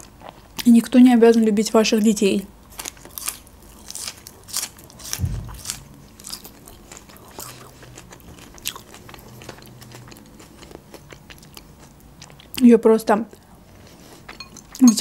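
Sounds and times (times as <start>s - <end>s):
person chewing food: 2.7s - 12.6s, 13.3s - 15.0s
dull low thump: 5.2s - 5.6s.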